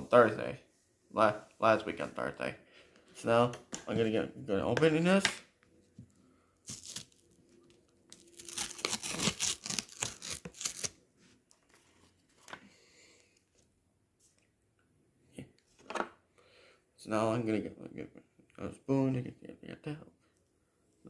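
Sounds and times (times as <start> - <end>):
packaging tearing and crinkling: 6.7 - 7.3, 8.1 - 11.0
faint handling sounds: 11.1 - 14.6.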